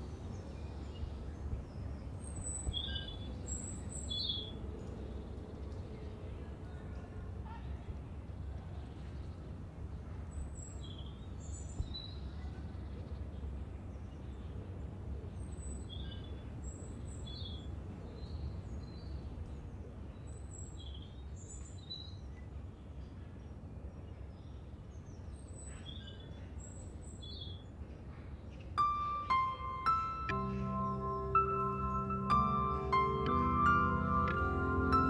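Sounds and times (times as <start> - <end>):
small birds chirping: 15.4 - 35.0.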